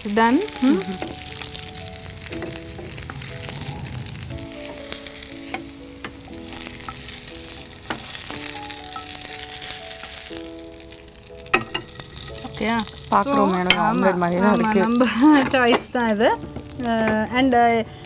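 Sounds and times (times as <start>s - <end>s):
dosas sizzling in oil: 0.0s - 18.0s
spatula tapping and scraping pan: 7.8s - 9.1s, 13.7s - 17.3s.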